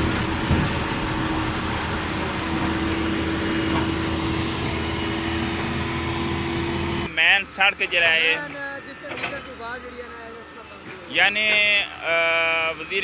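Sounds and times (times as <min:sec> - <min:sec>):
vehicle engine running: 0:00.0 - 0:07.6
road and wind noise: 0:00.0 - 0:07.9.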